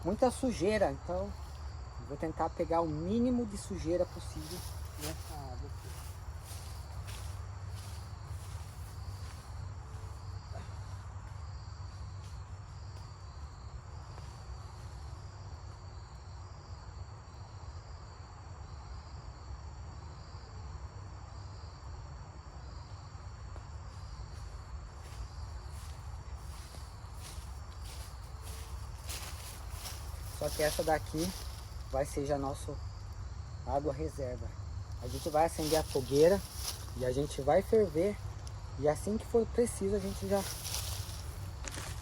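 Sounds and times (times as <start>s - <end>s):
insects trilling: 0.0s - 42.0s
pulsed insect chirp: 0.0s - 42.0s
low constant rumble: 24.6s - 42.0s.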